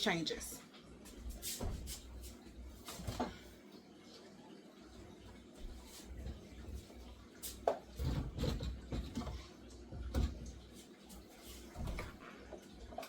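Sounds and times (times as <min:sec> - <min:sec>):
items clattering in refrigerator: 0:01.1 - 0:03.6, 0:05.2 - 0:13.0.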